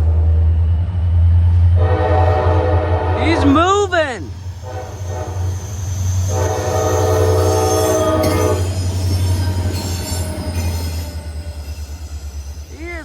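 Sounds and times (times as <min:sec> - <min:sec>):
locomotive horn blast: 0:01.8 - 0:08.8.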